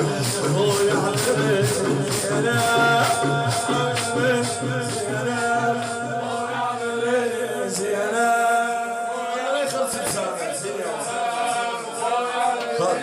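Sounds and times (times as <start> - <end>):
sharp beats: 0.0 - 7.0
man chanting: 0.0 - 13.0.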